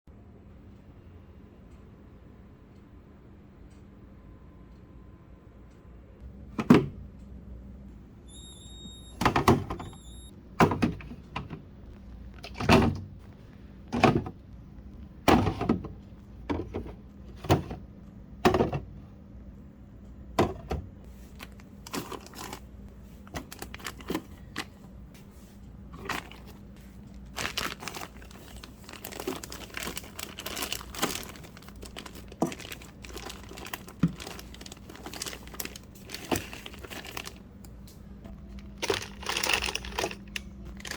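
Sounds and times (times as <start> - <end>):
items knocking and thunking: 10.6 - 11.7, 12.3 - 19.0, 20.3 - 22.6, 25.9 - 37.4, 38.2 - 40.9
plastic crinkling and rustling: 21.1 - 24.8, 25.8 - 37.4, 38.4 - 40.9.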